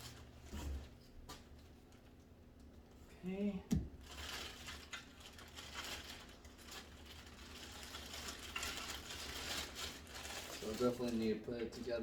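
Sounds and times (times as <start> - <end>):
plastic packaging rustling: 3.8 - 12.0.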